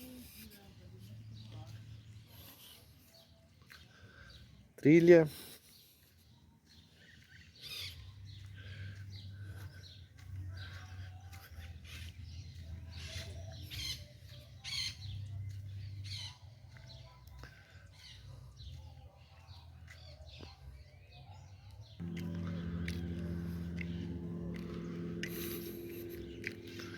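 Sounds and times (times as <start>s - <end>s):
birds chirping: 0.0s - 26.9s
low steady rumble: 22.0s - 26.9s.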